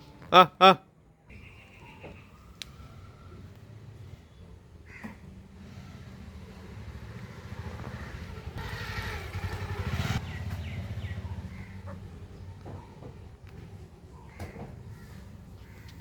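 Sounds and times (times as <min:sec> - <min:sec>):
vehicle engine passing by: 0:02.4 - 0:14.2.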